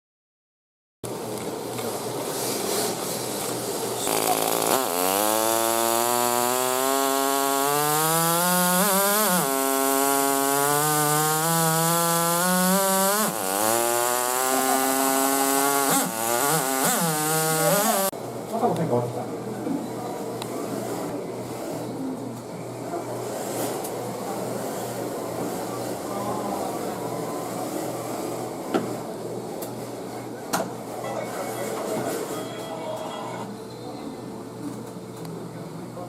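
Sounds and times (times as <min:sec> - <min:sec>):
model engine buzz revving: 0:04.0 - 0:18.1.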